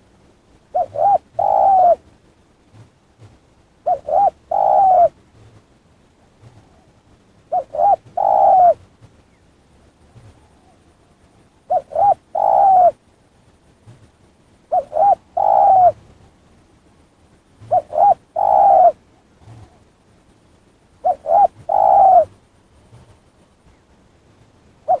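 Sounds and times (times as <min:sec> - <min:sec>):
dove cooing: 0:00.7 - 0:02.0, 0:03.8 - 0:05.2, 0:07.5 - 0:08.9, 0:11.7 - 0:13.0, 0:14.7 - 0:16.0, 0:17.6 - 0:19.9, 0:21.0 - 0:22.3.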